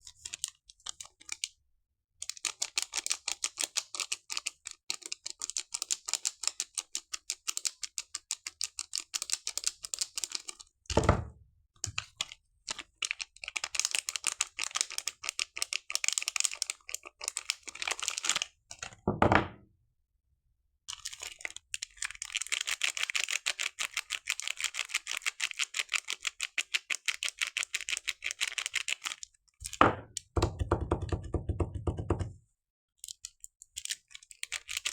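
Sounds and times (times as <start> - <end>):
soap wrapper crinkling: 2.2 - 10.7, 11.8 - 18.9, 20.9 - 30.3, 33.0 - 34.9.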